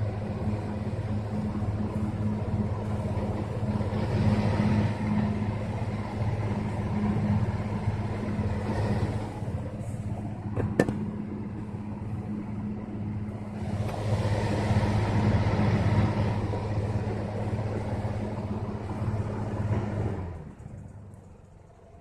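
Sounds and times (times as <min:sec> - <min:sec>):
fan motor humming: 0:00.0 - 0:22.0.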